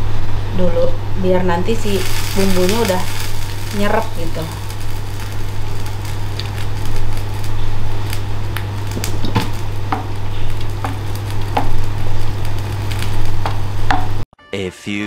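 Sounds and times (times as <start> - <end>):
steady low hum: 0.0 - 14.2
meat simmering in broth: 1.8 - 14.2.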